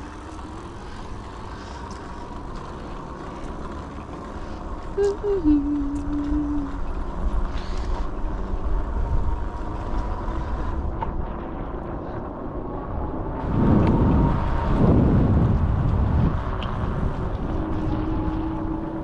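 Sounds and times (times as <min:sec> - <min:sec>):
faint steady whine: 0:00.0 - 0:19.0
wind rushing over microphone: 0:05.0 - 0:19.0.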